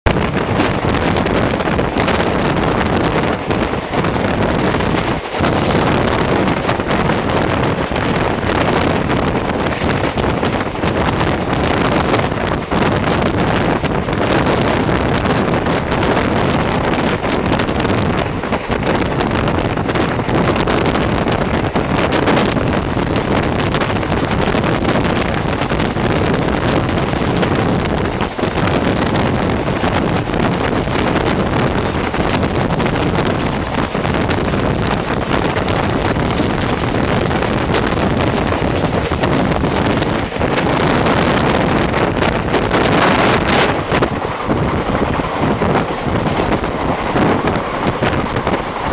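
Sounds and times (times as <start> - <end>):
passenger train moving at speed: 0.0 - 48.9
wind buffeting microphone: 0.0 - 48.9.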